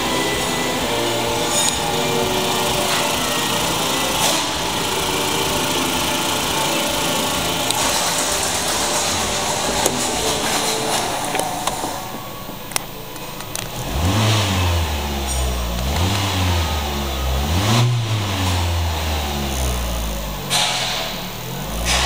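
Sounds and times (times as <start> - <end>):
car engine running: 0.0 - 22.0.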